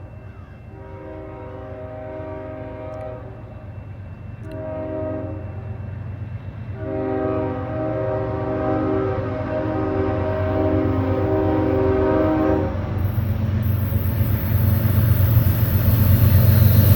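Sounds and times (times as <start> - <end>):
diesel locomotive rumble: 0.0 - 16.9
locomotive air horn blasts: 0.7 - 3.5, 4.4 - 5.8, 6.8 - 15.2.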